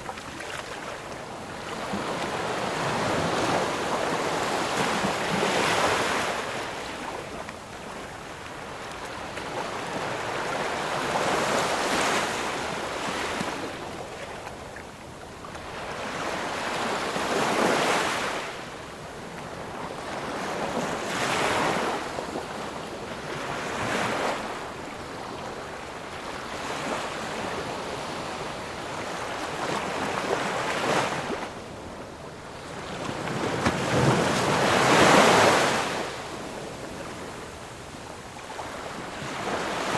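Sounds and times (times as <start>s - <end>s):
waves breaking on shore: 19.5s - 39.9s.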